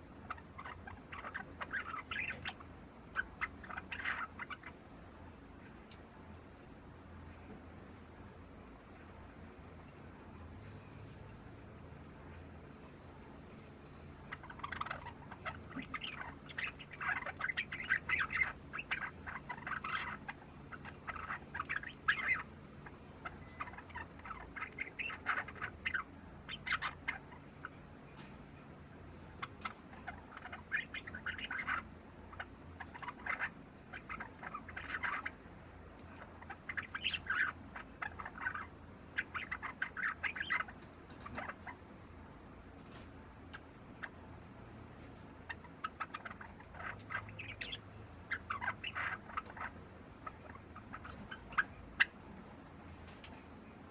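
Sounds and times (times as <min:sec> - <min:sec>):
sparrow chattering notes: 0:00.2 - 0:04.8, 0:14.2 - 0:27.8, 0:29.4 - 0:35.4, 0:36.0 - 0:41.8, 0:45.4 - 0:52.2.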